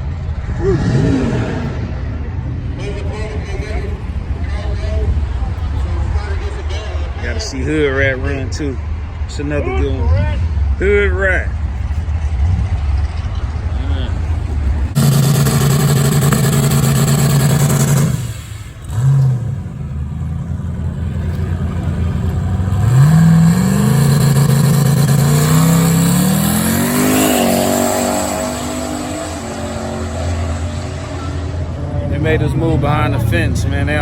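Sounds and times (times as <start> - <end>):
drag racing car engine revving: 11.5 - 34.0.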